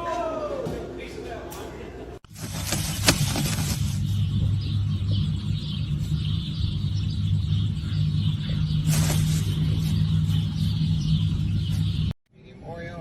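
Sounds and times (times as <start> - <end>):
rustling rush: 2.3 - 4.2, 8.8 - 10.4.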